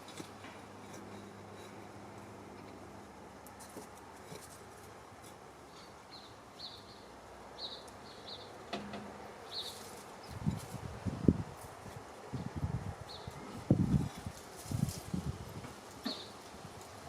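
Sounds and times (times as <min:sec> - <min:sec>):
low outdoor background noise: 0:00.0 - 0:17.0
rustling and knocks: 0:08.7 - 0:10.8.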